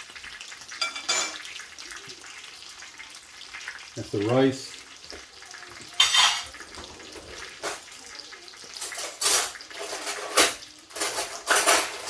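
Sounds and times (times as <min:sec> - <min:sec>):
kitchenware clattering: 0:00.7 - 0:01.6, 0:05.8 - 0:12.0.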